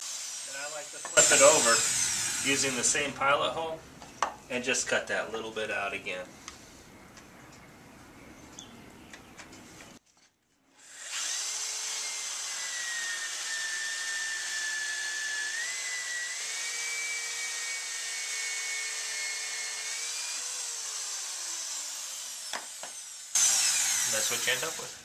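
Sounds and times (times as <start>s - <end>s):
electric drill whine: 0.0s - 3.2s, 10.8s - 25.0s.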